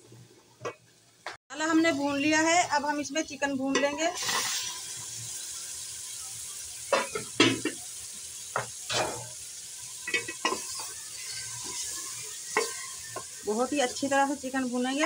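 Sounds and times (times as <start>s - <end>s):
chicken sizzling in hot oil: 0.8s - 15.0s
spatula scraping and knocking pot: 10.1s - 13.4s.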